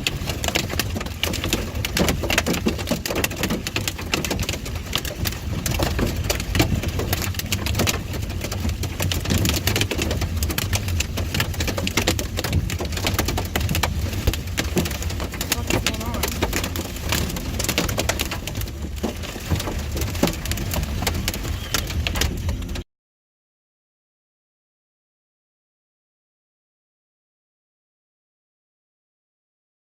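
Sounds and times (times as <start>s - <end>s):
car driving rumble: 0.0s - 22.8s
heavy rain on car roof: 0.0s - 22.9s.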